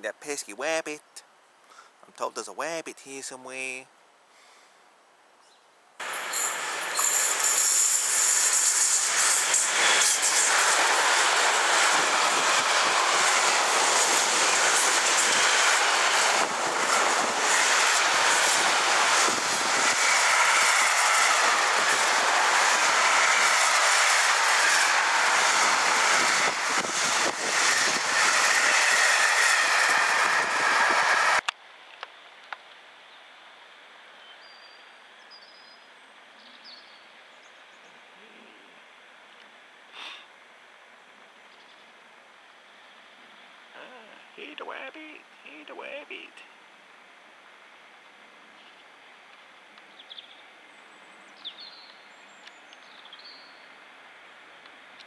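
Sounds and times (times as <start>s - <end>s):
freight train wheels rushing on rail: 6.0s - 31.5s.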